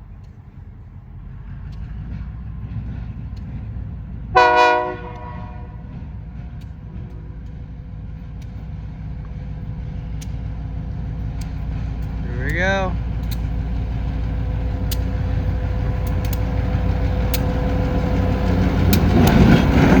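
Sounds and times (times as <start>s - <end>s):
train rumbling: 0.0s - 20.0s
locomotive horn blast: 4.3s - 5.9s.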